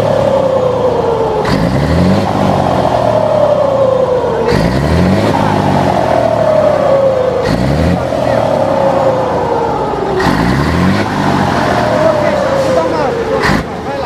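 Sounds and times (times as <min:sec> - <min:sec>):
diesel engine revving: 0:00.0 - 0:14.0.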